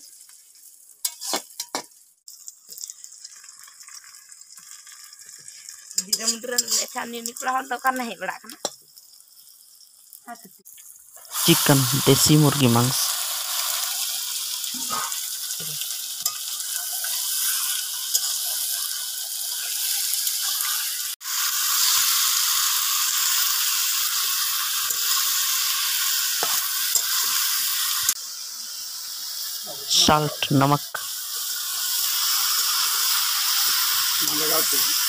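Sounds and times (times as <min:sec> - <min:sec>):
chicken sizzling in hot oil: 0:00.0 - 0:35.0
steel spoon clinking and scraping: 0:01.0 - 0:02.0, 0:05.6 - 0:07.0, 0:16.2 - 0:21.0, 0:26.4 - 0:28.2.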